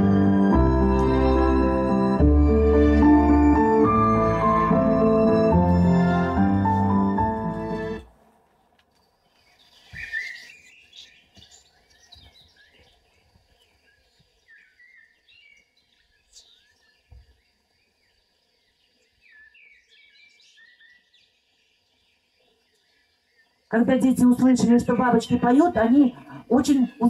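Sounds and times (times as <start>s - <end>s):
faint bird chirps and trills: 8.6s - 27.0s.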